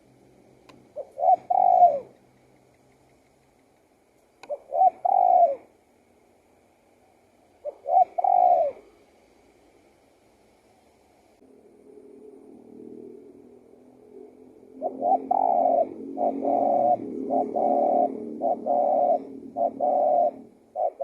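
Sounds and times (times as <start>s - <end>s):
dove cooing: 0.7s - 3.4s, 4.4s - 5.8s, 7.5s - 9.0s, 11.9s - 21.0s.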